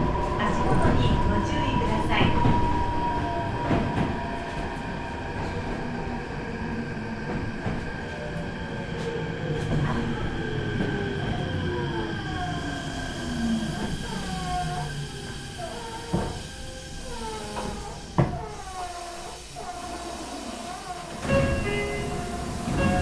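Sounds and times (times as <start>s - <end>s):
wheel and rail rumble: 0.0s - 23.0s
train motors whining: 11.0s - 23.0s.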